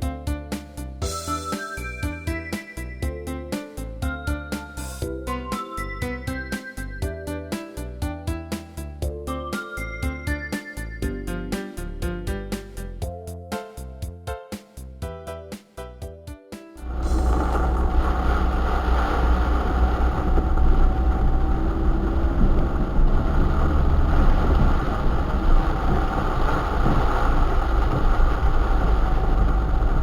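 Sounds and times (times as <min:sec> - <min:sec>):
van engine and road noise: 0:16.8 - 0:30.0.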